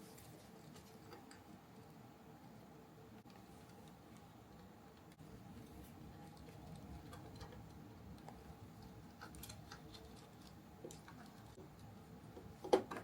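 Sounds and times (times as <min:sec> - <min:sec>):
low steady hum: 0:00.0 - 0:13.0
small parts clicking and tapping: 0:06.2 - 0:13.0.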